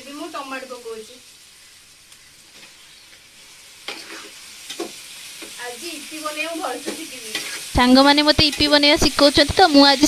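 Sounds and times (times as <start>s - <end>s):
vegetables sizzling in oil: 0.0s - 10.0s
metal spatula scraping pot: 3.9s - 4.9s, 7.2s - 7.7s.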